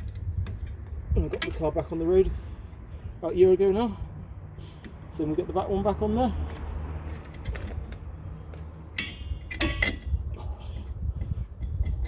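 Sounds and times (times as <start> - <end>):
metal spring and tools clinking: 8.9 - 10.2.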